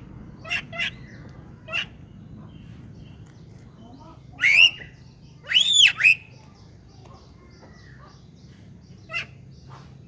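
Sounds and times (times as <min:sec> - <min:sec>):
bird calls: 0:00.3 - 0:10.0.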